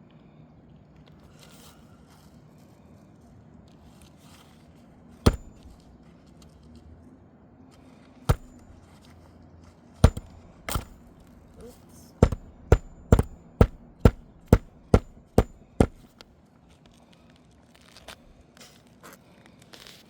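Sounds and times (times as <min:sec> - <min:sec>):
hammer blows on roofing nails: 0:05.3 - 0:05.8, 0:08.3 - 0:08.8, 0:10.0 - 0:11.5, 0:12.2 - 0:16.2.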